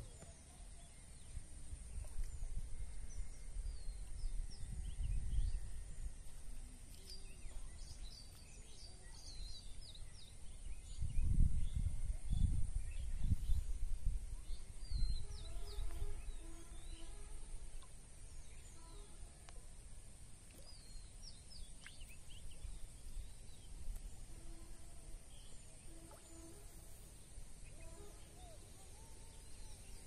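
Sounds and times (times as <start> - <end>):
small birds chirping: 0.0 - 19.8, 20.4 - 30.0
wind rumble on microphone: 1.2 - 8.2, 8.8 - 18.6.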